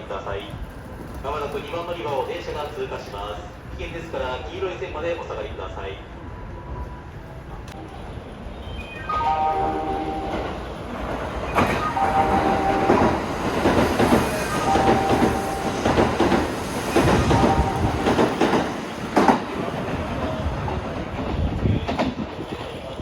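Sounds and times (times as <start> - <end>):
electric train passing: 6.0 - 23.0
train wheels clattering over rail joints: 11.1 - 22.8.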